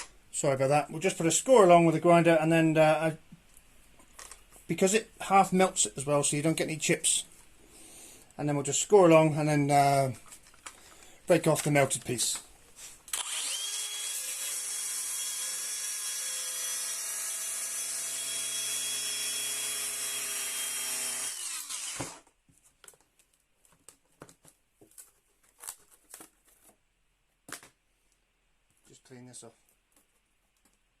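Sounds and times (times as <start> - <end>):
angle grinder whining: 13.1 - 22.2
grinder spinning down: 13.2 - 22.2.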